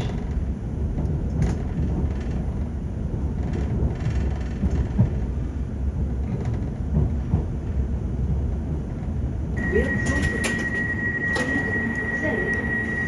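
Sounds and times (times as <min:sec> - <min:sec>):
train interior low rumble: 0:00.0 - 0:13.0
high electronic warning tone: 0:09.6 - 0:13.0.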